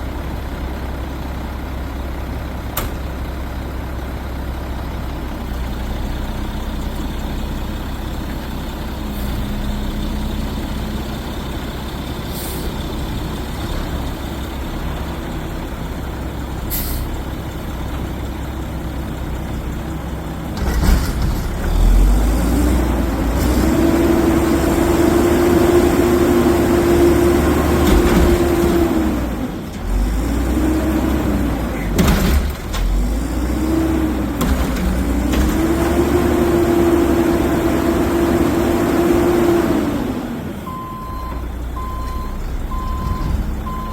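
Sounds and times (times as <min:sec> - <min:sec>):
garbage truck engine revving: 0:20.4 - 0:41.0.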